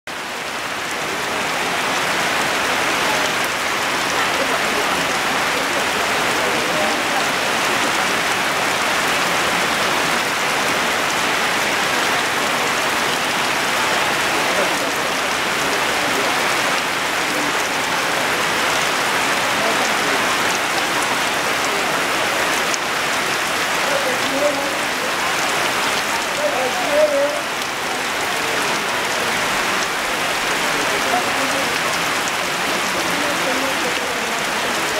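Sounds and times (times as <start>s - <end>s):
heavy rain falling: 0.1s - 34.9s
rainwater running off roof: 0.1s - 34.9s.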